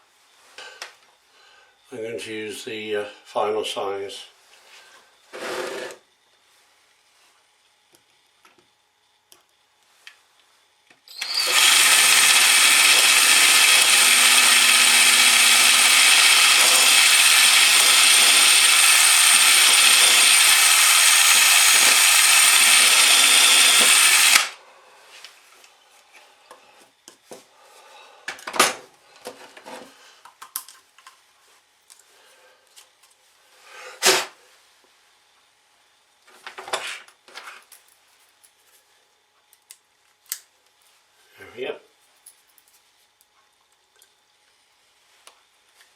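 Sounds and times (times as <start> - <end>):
electric drill running: 11.1 - 24.6.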